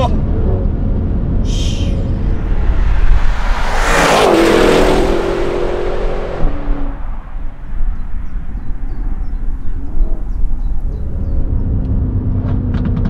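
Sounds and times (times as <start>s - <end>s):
car engine driving past: 1.6s - 11.8s.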